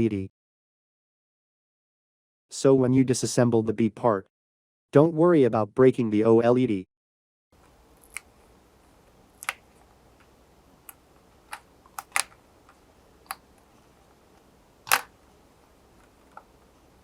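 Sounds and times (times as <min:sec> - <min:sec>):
plastic clicks and taps: 0:10.9 - 0:12.4, 0:14.9 - 0:15.1.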